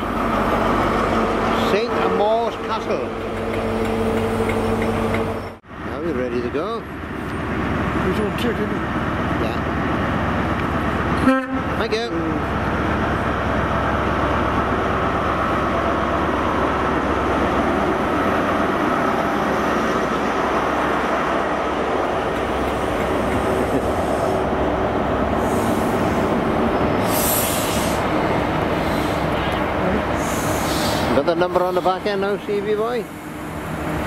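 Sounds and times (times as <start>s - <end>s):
diesel locomotive pulling out: 0.0s - 34.0s
train wheels on rails: 0.0s - 34.0s
high hiss: 27.0s - 29.3s.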